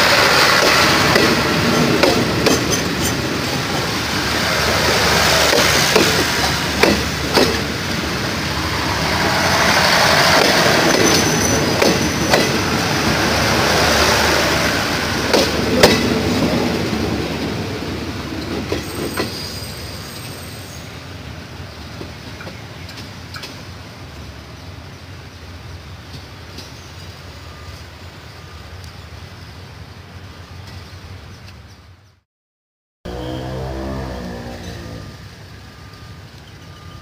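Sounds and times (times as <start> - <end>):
wheels clattering over rail joints: 0.0 - 14.6
high wheel squeals: 8.6 - 12.4, 18.8 - 21.0.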